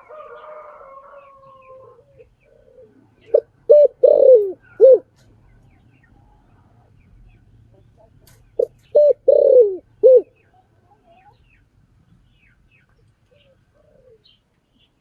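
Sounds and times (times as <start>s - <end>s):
dove cooing: 1.4s - 5.1s, 8.6s - 10.3s, 13.3s - 14.3s.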